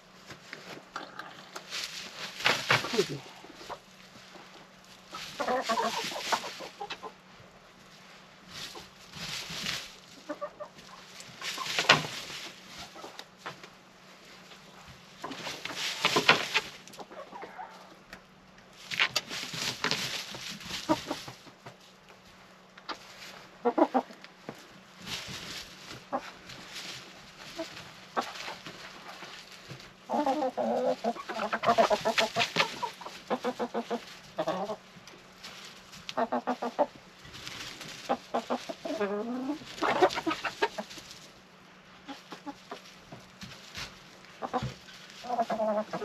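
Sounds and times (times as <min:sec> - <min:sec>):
hens clucking: 0:00.2 - 0:46.0.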